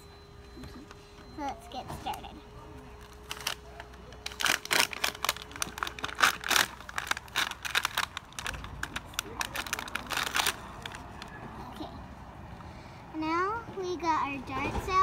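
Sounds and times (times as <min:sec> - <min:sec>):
packaging crinkling: 0:03.0 - 0:11.4.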